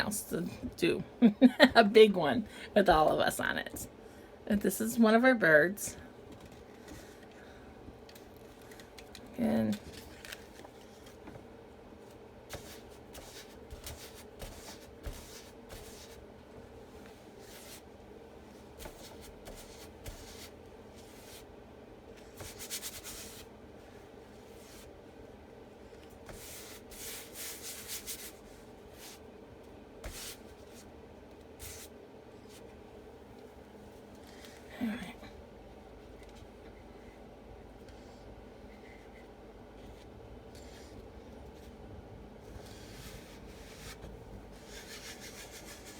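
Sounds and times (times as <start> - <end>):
steady low hum: 0.0 - 45.9
sheet rustling and rubbing: 12.5 - 16.2, 18.6 - 21.5.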